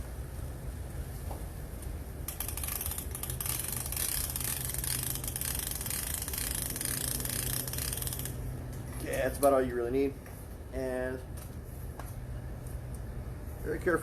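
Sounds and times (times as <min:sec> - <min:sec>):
rapid ratchet clicking: 0:02.3 - 0:09.5.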